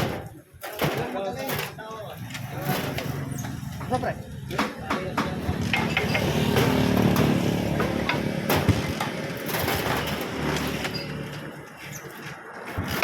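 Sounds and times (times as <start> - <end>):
vehicle engine running: 5.2 - 9.6.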